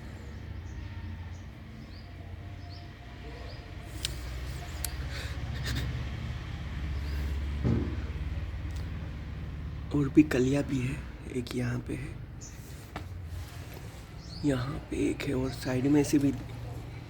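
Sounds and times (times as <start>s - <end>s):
small bird chirping: 13.7s - 14.8s.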